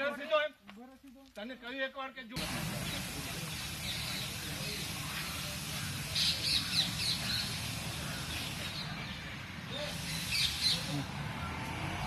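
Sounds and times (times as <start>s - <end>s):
steady background noise: 2.3s - 12.0s
bird chirping: 2.7s - 11.5s.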